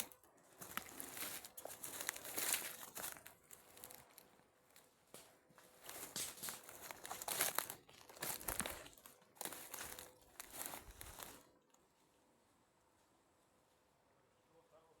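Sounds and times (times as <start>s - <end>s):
dry leaves rustling and crunching: 0.0s - 11.5s.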